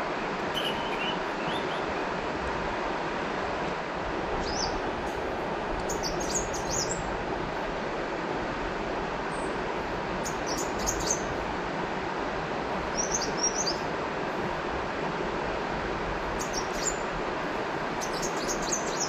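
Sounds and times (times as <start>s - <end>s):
river water flowing: 0.0s - 19.0s
small birds twittering: 0.5s - 2.1s, 4.4s - 4.8s, 5.8s - 7.0s, 10.2s - 11.3s, 12.9s - 13.8s, 16.4s - 17.0s, 18.0s - 19.0s.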